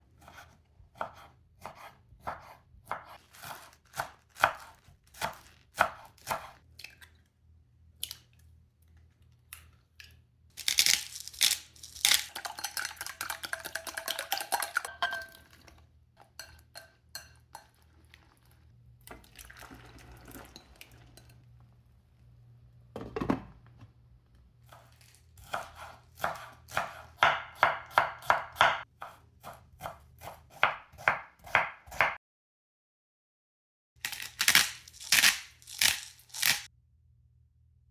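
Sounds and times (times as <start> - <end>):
knife chopping on cutting board: 0.2 - 6.6, 24.7 - 32.2
kitchen clatter: 11.9 - 17.8.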